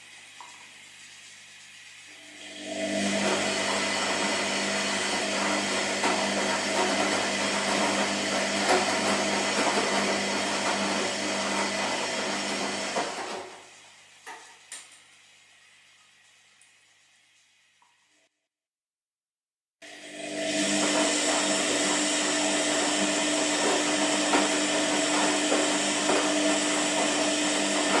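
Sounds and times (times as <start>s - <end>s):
washing machine drum turning: 2.6s - 13.6s, 20.2s - 28.0s.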